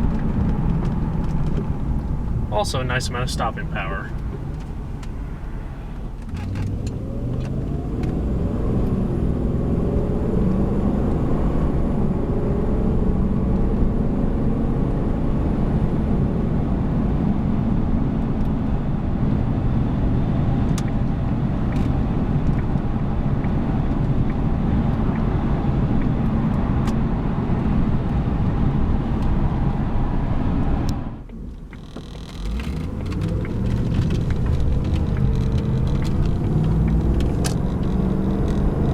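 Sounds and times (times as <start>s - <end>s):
car engine pulling: 0.0s - 11.2s, 31.2s - 38.9s.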